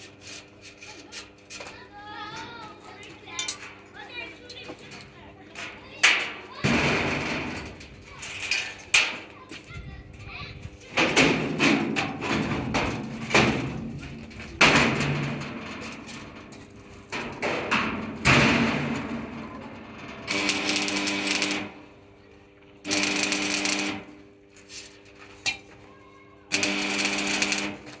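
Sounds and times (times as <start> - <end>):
humming machine: 10.6 - 24.6, 26.5 - 28.0.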